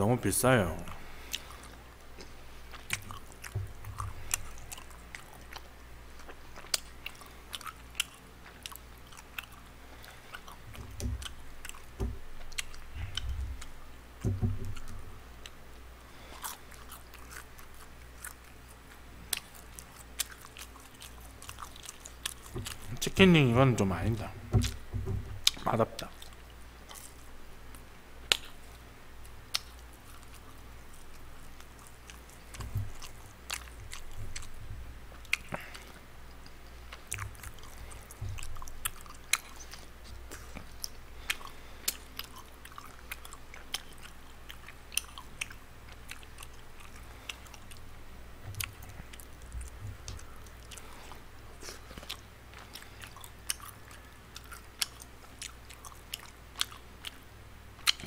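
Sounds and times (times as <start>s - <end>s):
man chewing food: 0.9s - 58.0s
wet mouth clicks: 29.5s - 30.5s, 57.8s - 58.0s.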